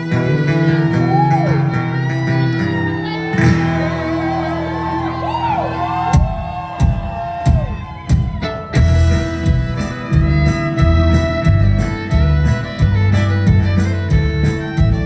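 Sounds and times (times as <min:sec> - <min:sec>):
strummed acoustic guitar: 0:00.0 - 0:06.5, 0:08.2 - 0:15.0
fiddle swooping notes: 0:08.4 - 0:15.0.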